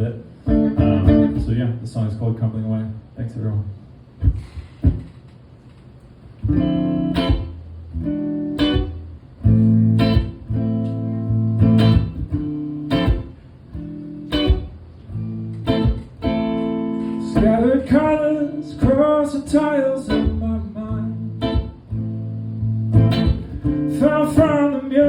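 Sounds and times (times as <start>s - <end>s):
guitar strummed chords: 0.4s - 1.5s, 6.4s - 25.0s.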